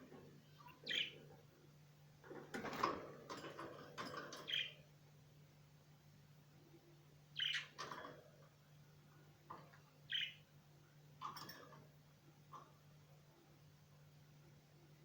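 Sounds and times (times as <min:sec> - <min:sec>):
faint low hum: 0:00.0 - 0:15.0
small birds chirping: 0:00.4 - 0:01.5, 0:03.4 - 0:05.0, 0:07.3 - 0:08.1, 0:09.4 - 0:10.6.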